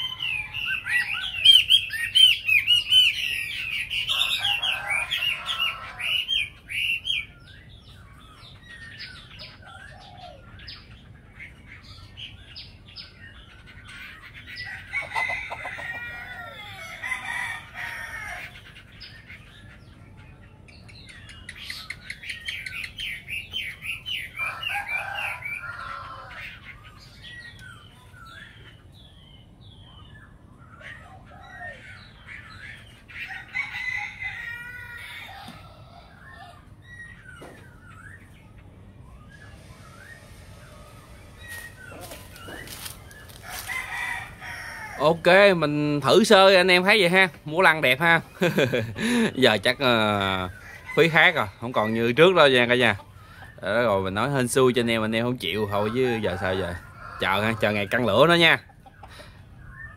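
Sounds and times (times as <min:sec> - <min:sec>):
bird whistling song: 0:36.1 - 0:43.4, 0:59.0 - 0:59.9.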